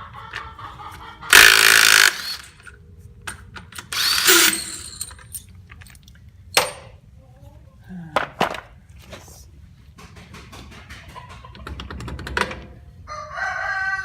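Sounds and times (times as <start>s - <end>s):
power tool running: 1.3s - 2.7s, 3.8s - 5.2s.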